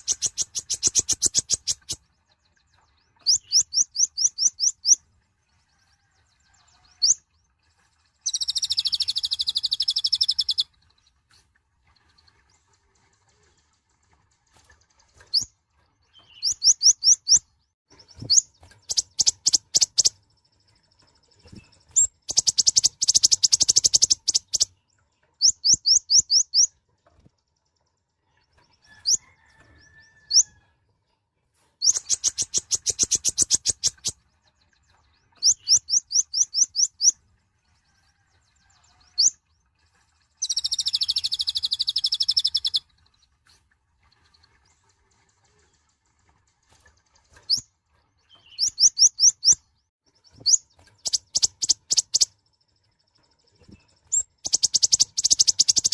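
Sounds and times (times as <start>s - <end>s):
bird singing high rapid notes: 0.0s - 5.0s, 8.2s - 10.7s, 15.2s - 26.8s, 31.8s - 37.2s, 40.4s - 42.9s, 48.2s - 52.8s, 53.4s - 55.9s.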